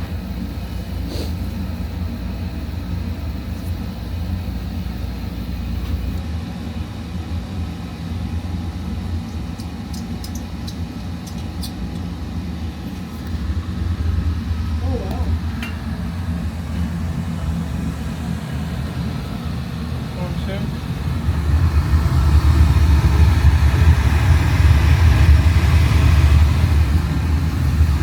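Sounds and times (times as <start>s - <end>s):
oil burner rumbling: 0.0s - 28.0s.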